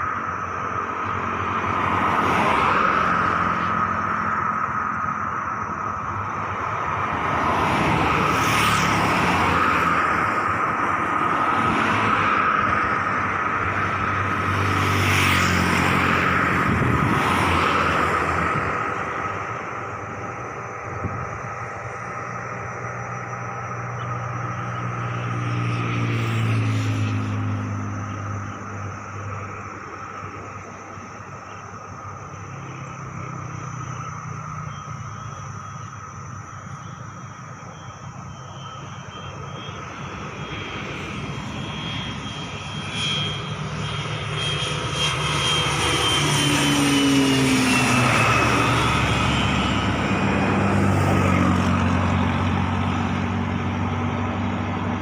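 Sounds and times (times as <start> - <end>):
turbine aircraft engine whine: 0.0 - 55.0.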